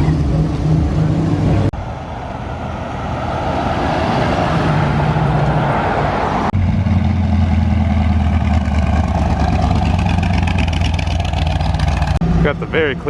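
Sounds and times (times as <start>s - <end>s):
rushing engine sound: 0.0s - 13.0s
car engine idling: 6.5s - 13.0s.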